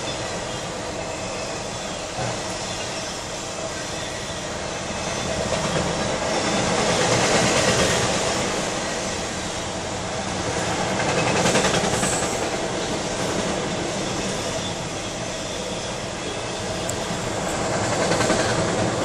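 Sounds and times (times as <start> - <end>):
freight cars rattling on rails: 0.0 - 19.0.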